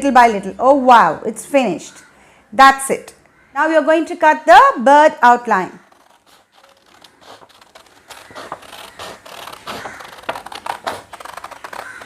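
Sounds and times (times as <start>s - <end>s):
scissors cutting paper: 5.7s - 12.0s.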